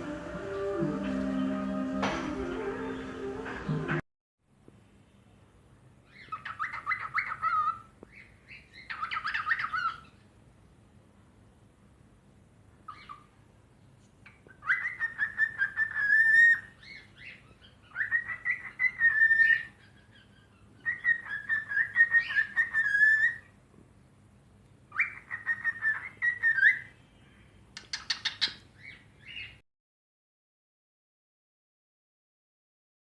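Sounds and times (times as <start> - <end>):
harsh bird chirp: 6.0 - 10.2, 12.9 - 13.4, 14.3 - 23.5, 24.9 - 29.6
cockatiel whistling: 6.2 - 7.8, 8.8 - 10.1, 14.6 - 23.4, 24.9 - 26.9.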